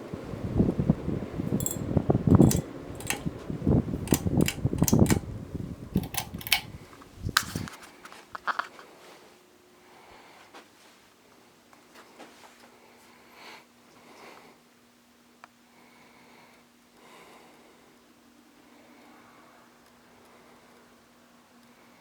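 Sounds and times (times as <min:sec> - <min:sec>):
air buffeting microphone: 0:00.0 - 0:07.8
ceiling fan spinning down: 0:00.0 - 0:07.8
light clicks and ticks: 0:01.5 - 0:03.3, 0:04.1 - 0:05.2, 0:06.0 - 0:06.7.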